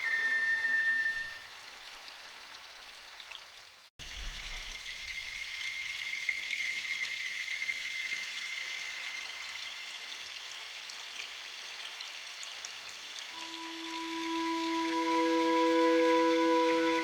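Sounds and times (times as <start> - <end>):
steady rain in forest: 0.1 - 5.8, 10.8 - 17.0.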